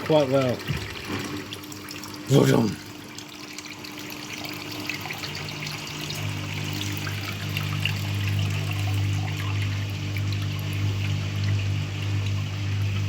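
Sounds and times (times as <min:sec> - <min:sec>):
drain pump humming: 0:00.0 - 0:13.0
water splashing from drain hose: 0:00.0 - 0:13.0.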